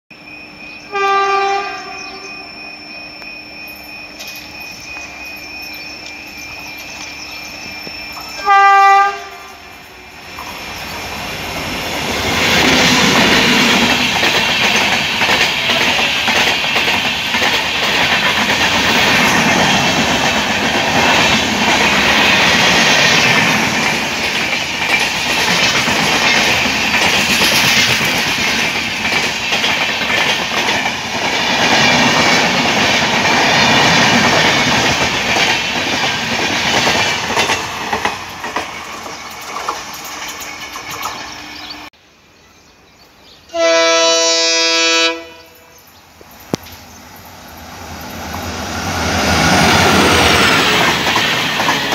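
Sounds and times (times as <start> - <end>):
train wheels rumbling on rails: 0.1 - 42.0, 43.5 - 51.9
locomotive horn blasts: 0.9 - 2.5, 8.4 - 9.8, 43.5 - 45.7.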